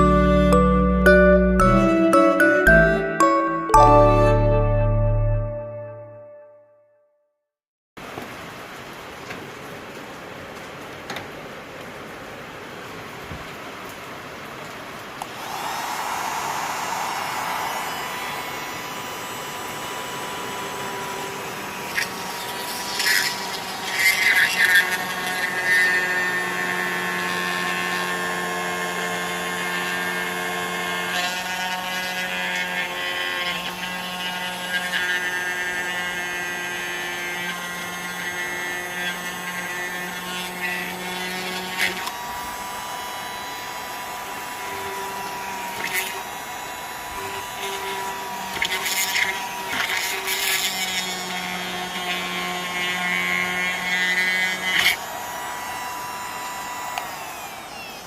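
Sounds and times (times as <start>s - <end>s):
drilling machine motor whining: 15.2s - 58.0s.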